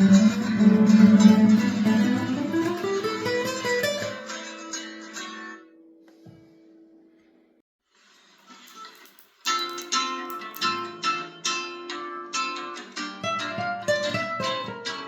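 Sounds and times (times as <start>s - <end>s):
guitar strummed and plucked: 0.0s - 5.9s, 9.9s - 15.0s.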